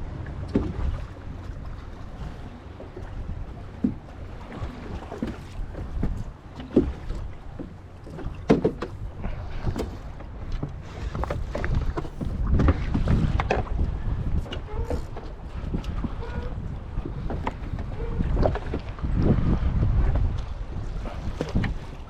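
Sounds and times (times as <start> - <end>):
wind and water rumble: 0.0 - 22.0
sharp knocks on boat: 0.4 - 1.6, 3.7 - 13.8, 21.3 - 22.0.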